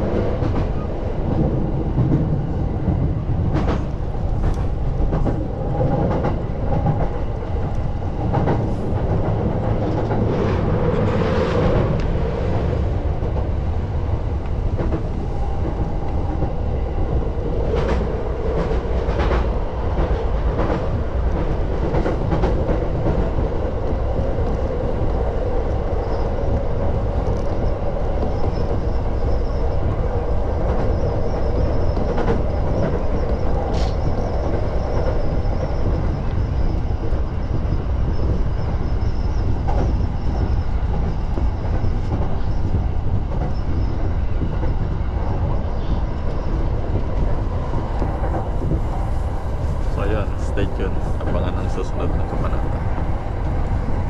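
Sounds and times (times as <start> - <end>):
train rumbling on track: 0.0 - 54.0.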